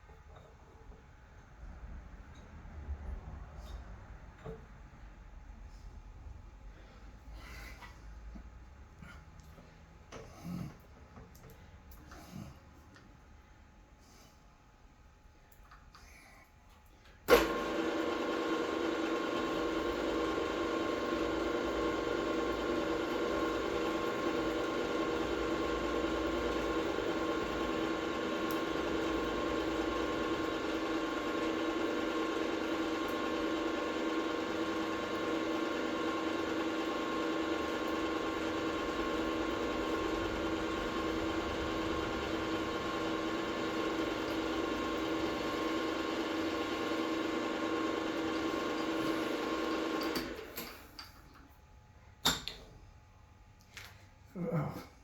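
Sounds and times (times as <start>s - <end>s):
electric motor humming and whining: 17.4s - 50.4s.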